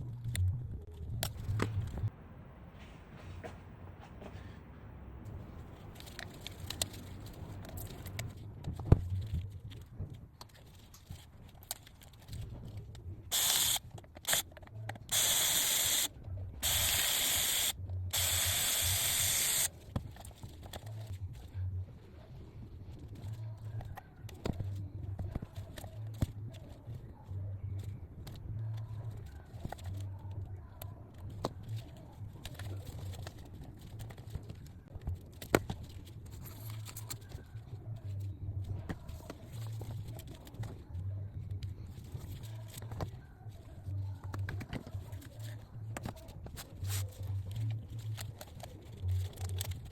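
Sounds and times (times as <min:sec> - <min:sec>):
aerosol can spraying: 0:13.3 - 0:14.4, 0:15.1 - 0:19.7.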